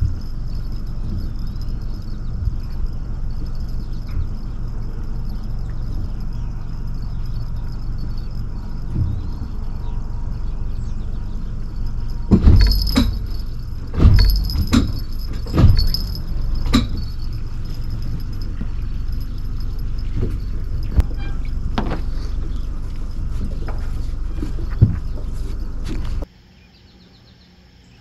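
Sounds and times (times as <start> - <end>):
boat motor drone: 0.0 - 26.2
metallic rattles: 0.0 - 26.3
loud thuds: 12.3 - 22.7.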